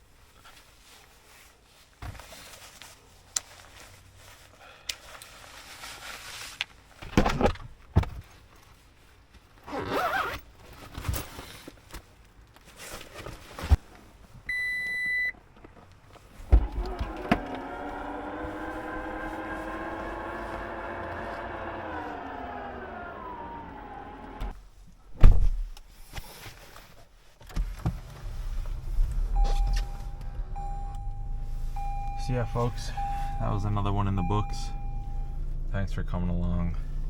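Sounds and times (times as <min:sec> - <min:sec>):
handling rustles and knocks: 0:00.2 - 0:09.6, 0:10.3 - 0:14.4
short electronic beep: 0:14.5 - 0:15.3, 0:29.3 - 0:33.6, 0:34.2 - 0:35.4
thump: 0:25.2 - 0:25.7.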